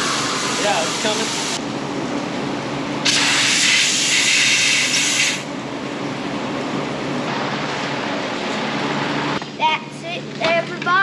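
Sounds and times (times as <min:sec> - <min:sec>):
loud rushing hiss: 0:03.1 - 0:05.5.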